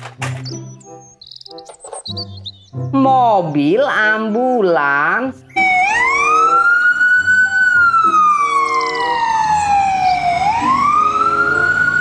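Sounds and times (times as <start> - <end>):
ambulance siren wailing: 5.5 - 12.0.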